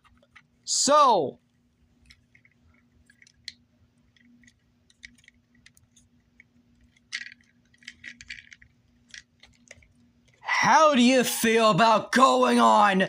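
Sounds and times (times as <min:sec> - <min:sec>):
faint steady hum: 0:00.0 - 0:13.0
plastic parts clicking together: 0:02.0 - 0:10.4.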